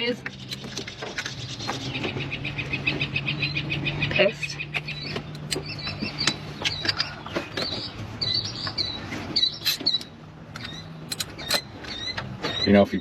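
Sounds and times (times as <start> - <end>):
small birds chirping: 0.0 - 13.0
hand tools clicking and knocking: 9.6 - 12.6.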